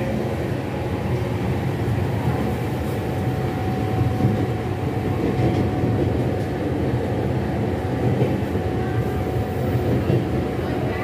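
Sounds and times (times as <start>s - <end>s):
train coach rolling rumble: 0.0s - 11.0s.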